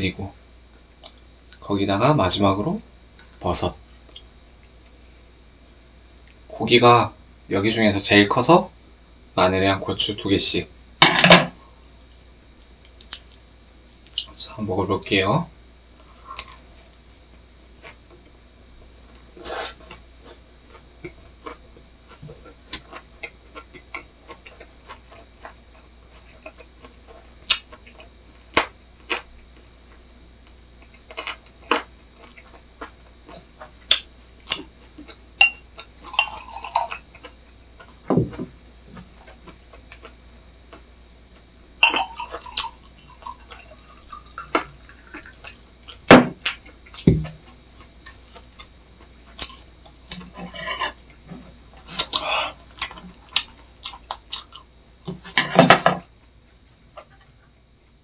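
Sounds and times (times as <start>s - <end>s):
crisp chewing and mouth sounds: 19.0s - 38.0s, 42.2s - 54.8s
beer pouring into a glass: 36.1s - 36.9s, 41.8s - 45.0s.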